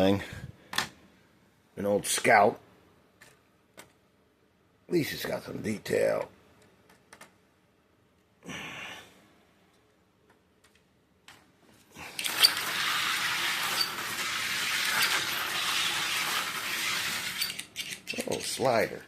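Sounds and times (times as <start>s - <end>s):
slot car whirring: 12.2s - 17.7s.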